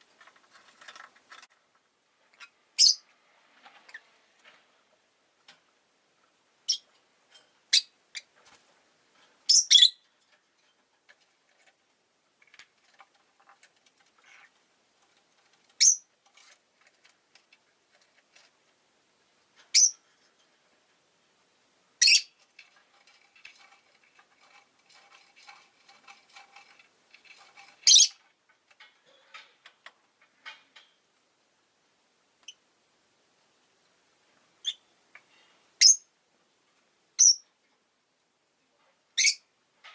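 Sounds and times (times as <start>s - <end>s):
bird chirping: 2.4s - 3.1s, 6.6s - 6.9s, 7.7s - 8.3s, 9.5s - 10.0s, 15.7s - 16.1s, 19.7s - 20.0s, 22.0s - 22.4s, 27.8s - 28.2s, 34.6s - 34.9s, 35.8s - 36.1s, 37.2s - 37.5s, 39.2s - 39.5s.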